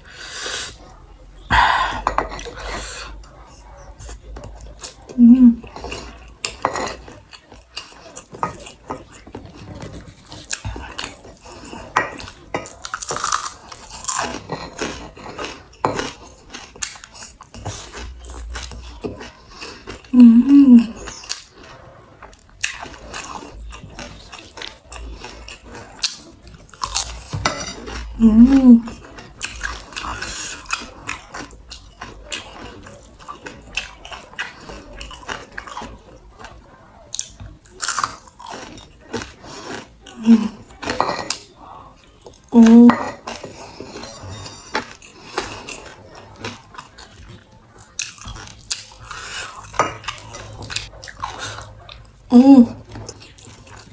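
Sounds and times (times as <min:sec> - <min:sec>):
close chewing and crunching: 0:00.0 - 0:53.9
person humming mm: 0:20.2 - 0:20.9.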